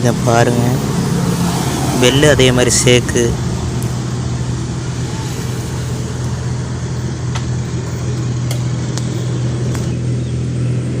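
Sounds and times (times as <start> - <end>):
moped engine running: 0.0 - 11.0.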